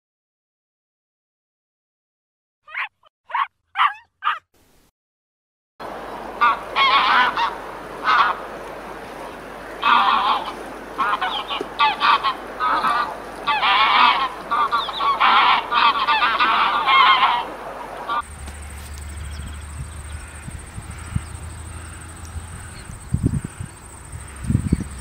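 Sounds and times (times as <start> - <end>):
geese honking: 5.8 - 25.0.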